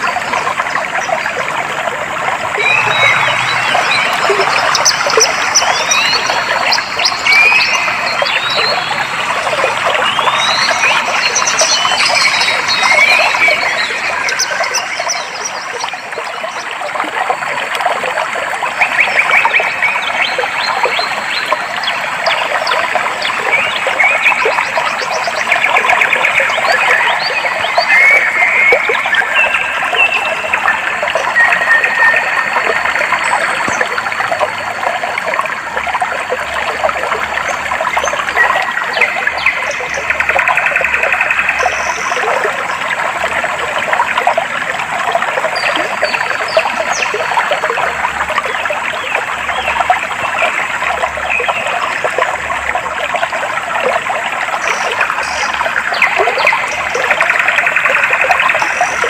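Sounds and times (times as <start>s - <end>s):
stream babbling and splashing: 0.0s - 59.0s
birds chirping: 2.4s - 16.1s.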